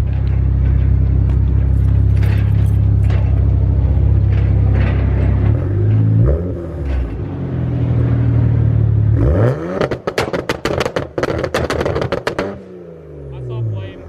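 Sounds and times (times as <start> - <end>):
car engine revving: 1.0 - 14.0
sharp exhaust pops: 9.6 - 12.7.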